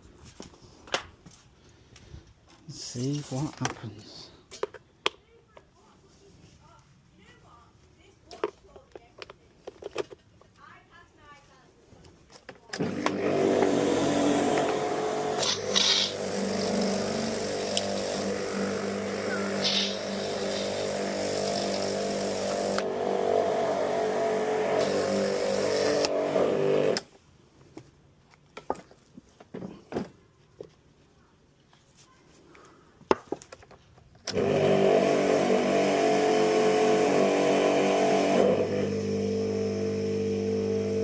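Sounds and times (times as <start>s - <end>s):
pressure washer motor and pump hum: 12.8s - 27.0s, 34.3s - 41.0s
water spray hiss: 15.4s - 18.3s, 19.5s - 22.8s.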